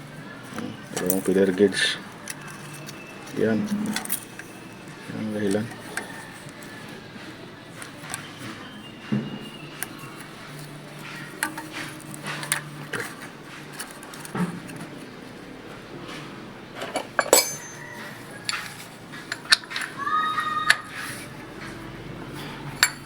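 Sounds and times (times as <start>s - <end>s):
metal tools clinking: 16.8s - 19.9s, 22.8s - 23.0s.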